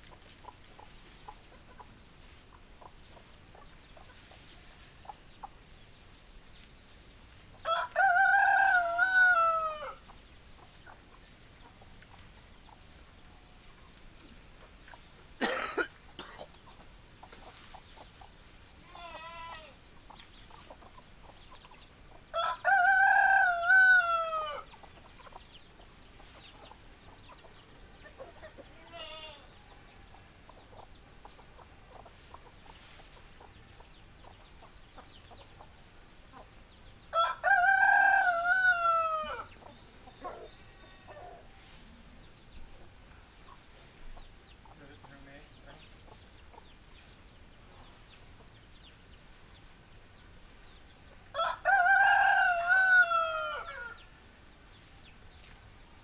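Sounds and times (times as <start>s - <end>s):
rooster crowing: 7.6s - 10.0s, 22.4s - 24.7s, 37.1s - 39.5s, 51.4s - 54.0s.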